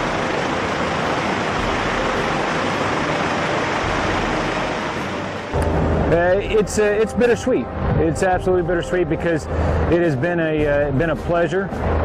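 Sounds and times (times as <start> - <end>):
helicopter rotor and turbine rushing: 0.0 - 8.0
faint steady whine: 0.0 - 11.0.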